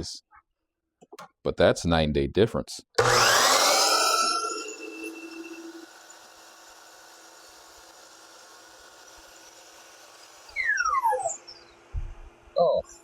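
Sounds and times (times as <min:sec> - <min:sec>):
saw blade coasting down: 0:03.0 - 0:11.9
whistle-like tone sliding down: 0:03.1 - 0:06.3, 0:10.5 - 0:11.7.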